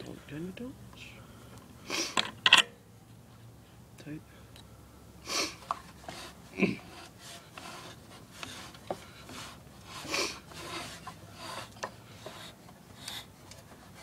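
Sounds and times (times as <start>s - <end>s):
rubbing and scraping of parts: 5.4s - 14.0s.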